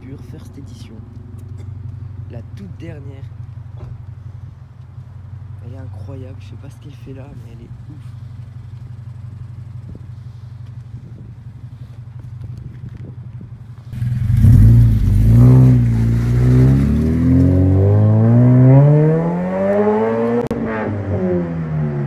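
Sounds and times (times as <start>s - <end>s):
car engine idling: 0.0s - 18.3s
car accelerating hard: 14.0s - 22.0s.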